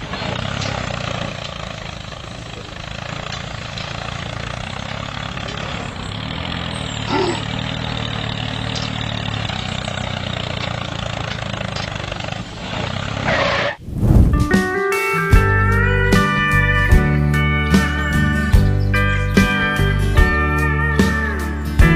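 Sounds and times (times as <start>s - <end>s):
small tractor motor humming: 0.0s - 13.8s.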